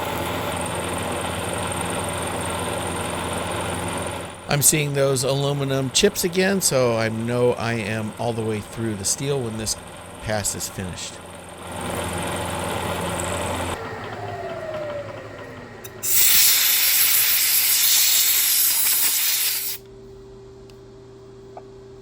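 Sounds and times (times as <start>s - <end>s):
steady hum with faint tone: 0.0s - 11.6s, 13.6s - 22.0s
machine winding down whine: 0.0s - 19.8s
milling machine cutting steel: 0.0s - 19.8s
loud steady hiss: 16.0s - 19.8s.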